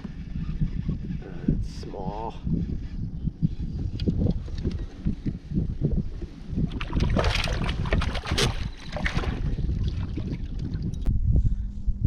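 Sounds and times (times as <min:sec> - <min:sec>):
wind buffeting microphone: 0:00.0 - 0:12.0
water against kayak hull: 0:04.4 - 0:11.1.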